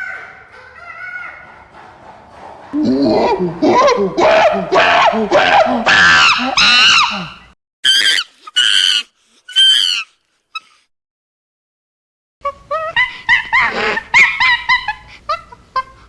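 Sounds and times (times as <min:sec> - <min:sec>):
animal squealing cries: 0:05.9 - 0:10.8.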